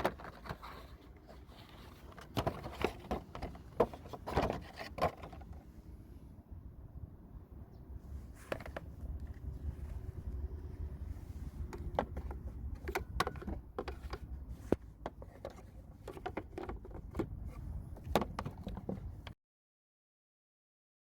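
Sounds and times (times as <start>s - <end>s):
low steady rumble: 0.1s - 19.4s.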